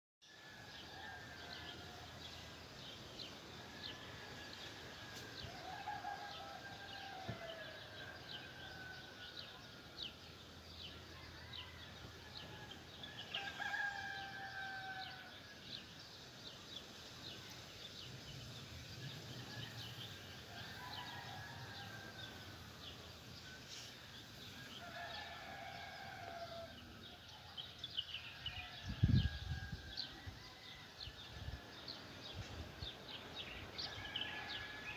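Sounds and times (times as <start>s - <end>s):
songbirds chirping: 0.2s - 34.9s
rooster crowing: 3.8s - 9.4s, 11.1s - 15.5s, 19.5s - 22.7s, 24.7s - 26.9s, 33.8s - 34.9s.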